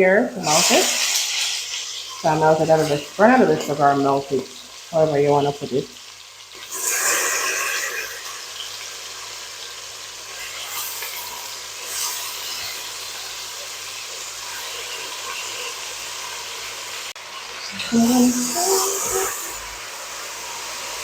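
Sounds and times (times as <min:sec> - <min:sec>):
chicken wings sizzling in oil: 0:00.0 - 0:21.0.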